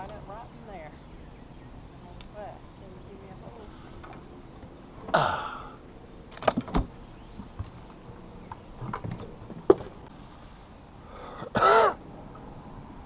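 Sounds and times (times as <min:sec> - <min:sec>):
faint high bird chirps: 0:00.4 - 0:04.1.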